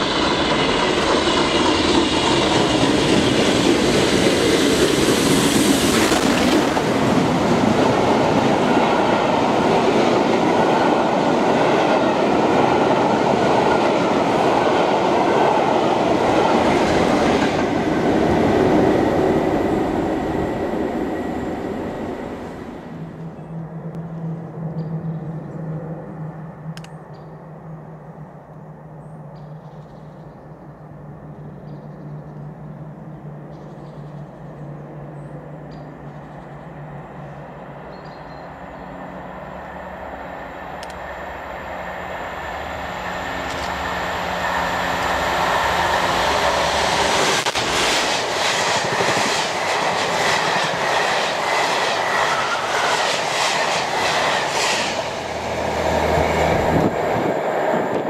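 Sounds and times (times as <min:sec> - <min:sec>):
passenger train approaching: 0:00.0 - 0:58.0.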